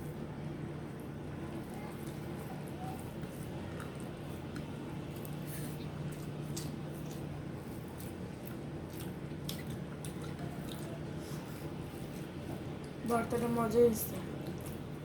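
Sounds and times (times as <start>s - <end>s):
steady low hum: 0.0s - 15.0s
wet chewing: 1.0s - 13.4s, 14.1s - 15.0s.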